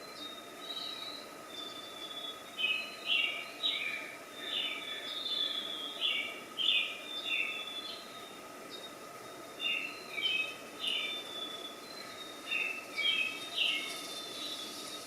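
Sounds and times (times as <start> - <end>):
small birds chirping: 0.0 - 15.0
steady background hum: 0.0 - 15.0.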